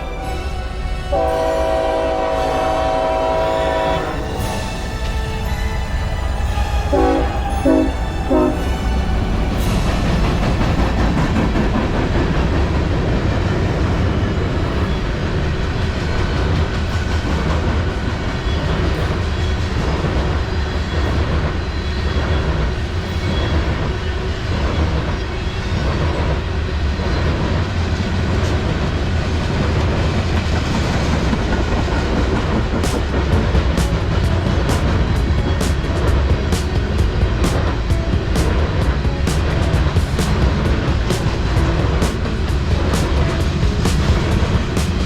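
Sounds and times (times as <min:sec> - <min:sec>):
train wheels rumbling on rails: 0:00.0 - 0:45.0
clickety-clack over rail joints: 0:07.7 - 0:45.0.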